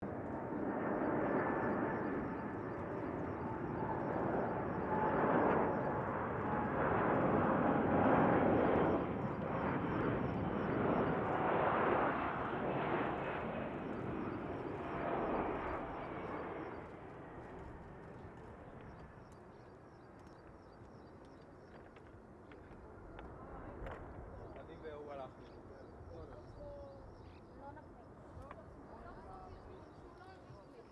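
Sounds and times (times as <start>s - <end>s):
jet plane roaring past: 0.0s - 20.0s.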